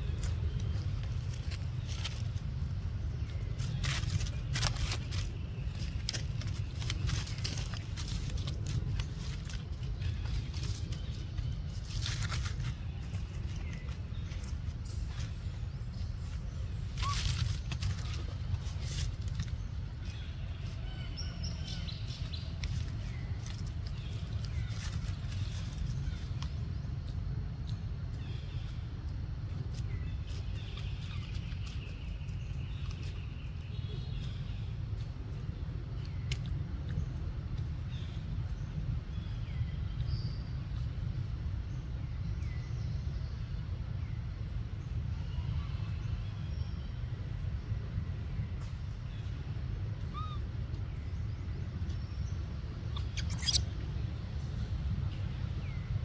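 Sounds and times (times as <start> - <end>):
steady low rumble: 0.0 - 56.0
baby monkey crying: 50.0 - 50.5, 53.0 - 53.8
high chirp-like animal call: 50.0 - 50.5, 52.9 - 53.8.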